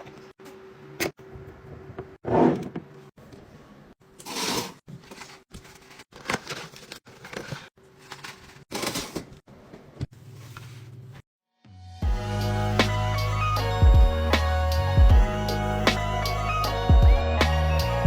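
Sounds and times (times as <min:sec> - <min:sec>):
packaging rustling: 0:04.4 - 0:09.1.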